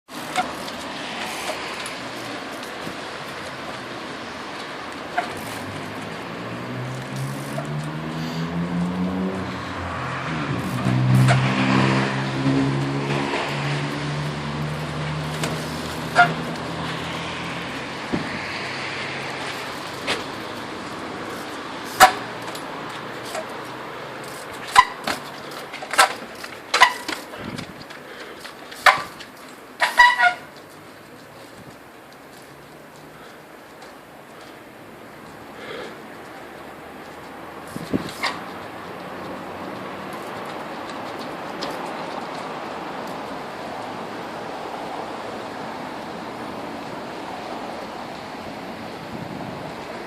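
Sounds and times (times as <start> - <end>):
metallic clanks of bike: 0.1 - 6.2, 10.3 - 13.9, 14.6 - 17.2, 19.4 - 43.3
engine revving: 5.3 - 23.1.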